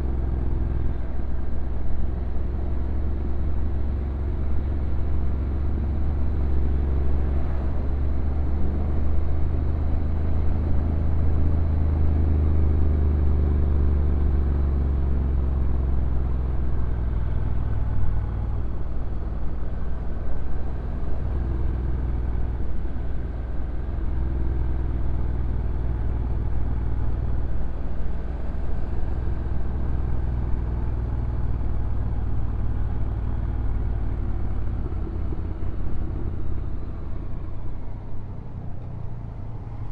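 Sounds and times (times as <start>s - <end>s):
motorcycle engine at low revs: 0.0s - 39.9s
steady low rumble: 14.2s - 39.9s.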